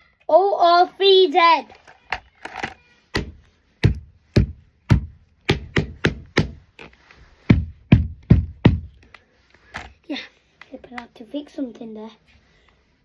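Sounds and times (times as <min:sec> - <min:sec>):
sharp taps and knocks: 0:02.7 - 0:06.9, 0:07.5 - 0:09.2.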